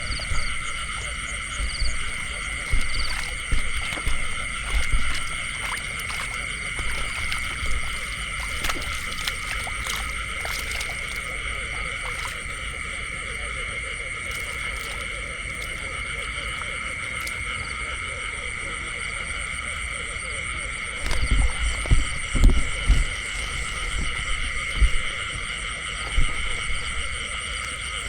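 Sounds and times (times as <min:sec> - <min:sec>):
low thumps: 0:00.0 - 0:12.7, 0:21.0 - 0:27.4
frogs calling: 0:00.0 - 0:28.0.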